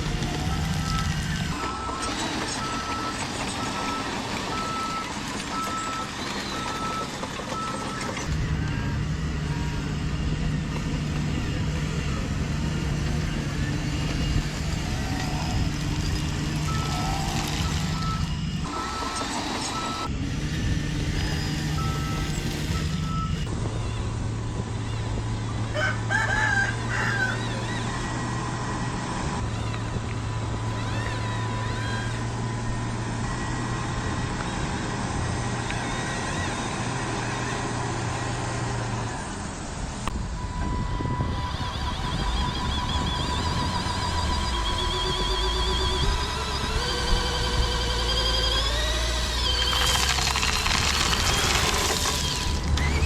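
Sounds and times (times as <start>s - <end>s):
mechanical motor hum: 0.0s - 53.0s
rooster crowing: 25.7s - 28.3s.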